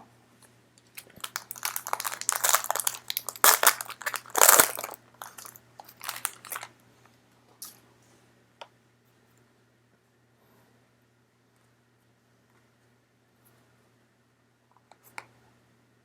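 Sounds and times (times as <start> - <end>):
plastic wrapper crinkling: 0.9 - 6.7.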